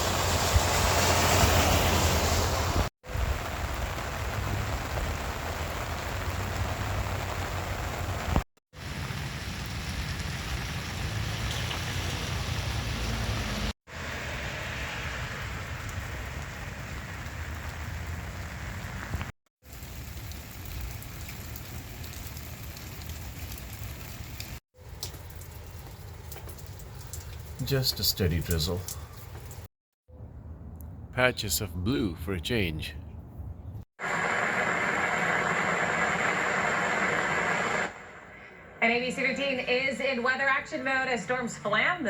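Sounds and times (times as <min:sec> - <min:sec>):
rain pattering on surfaces: 0:00.0 - 0:29.7.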